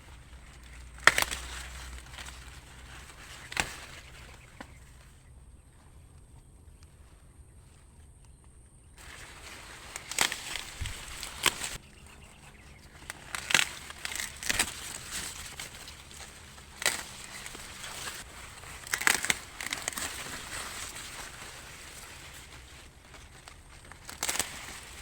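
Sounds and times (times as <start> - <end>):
leaves and husks rustling: 0.0 - 25.0
corn ears snapping off: 0.4 - 5.1, 9.0 - 11.8, 12.9 - 25.0.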